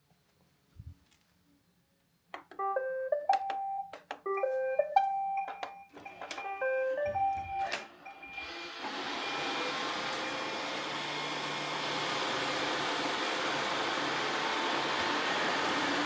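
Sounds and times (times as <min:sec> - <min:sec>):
robot vacuum beeping tunes: 0:02.4 - 0:12.3.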